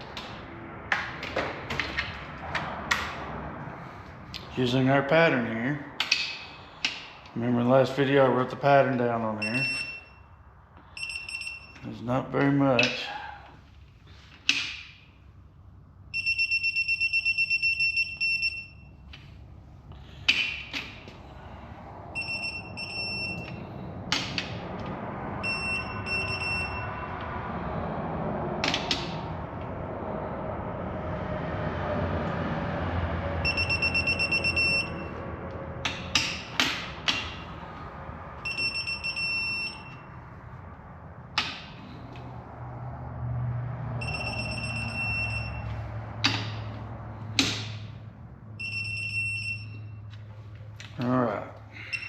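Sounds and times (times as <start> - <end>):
digital torque wrench beeping: 11.0 - 11.8, 16.2 - 18.9, 22.2 - 23.6, 25.4 - 27.0, 33.4 - 35.2, 38.4 - 40.1, 44.0 - 45.8, 48.6 - 50.0.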